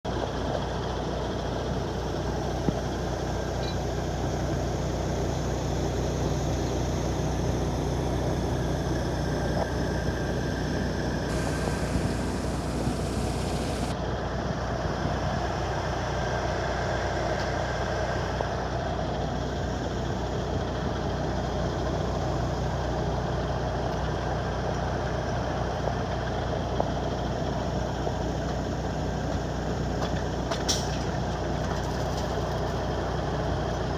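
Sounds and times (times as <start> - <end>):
heavy engine droning: 1.7 - 14.0
high hiss: 11.2 - 13.9.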